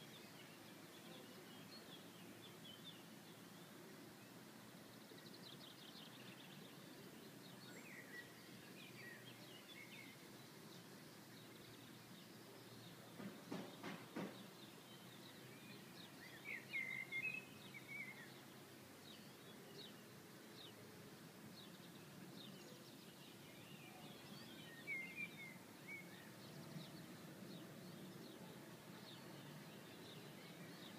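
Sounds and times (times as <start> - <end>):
small birds chirping: 0.0 - 30.9
brief knock: 13.2 - 14.5.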